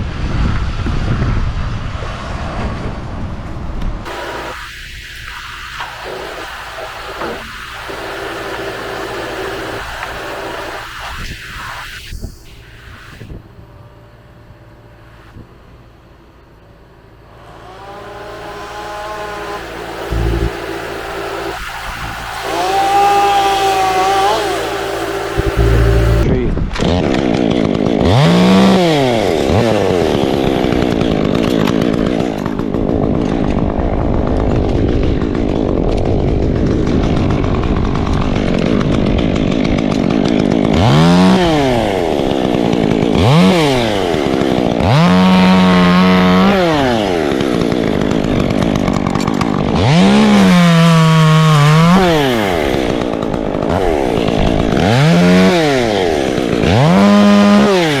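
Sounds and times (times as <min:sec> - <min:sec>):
chainsaw revving: 0:04.0 - 0:12.0, 0:17.1 - 0:58.0.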